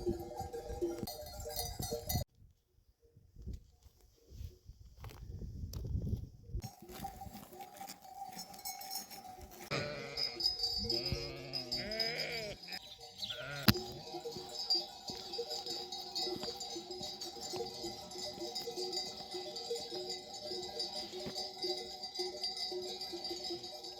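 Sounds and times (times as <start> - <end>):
sheep bells clanking: 0.0 - 2.3, 6.6 - 23.9
sheep bleating: 9.7 - 14.0.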